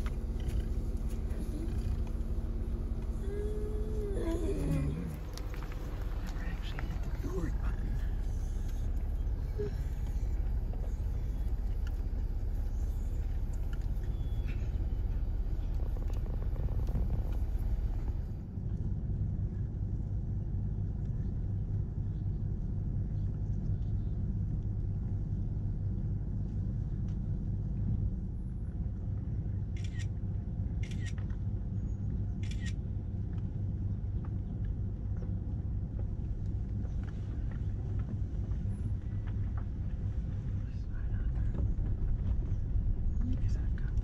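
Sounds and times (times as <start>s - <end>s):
vehicle engine rumbling: 0.0s - 44.0s.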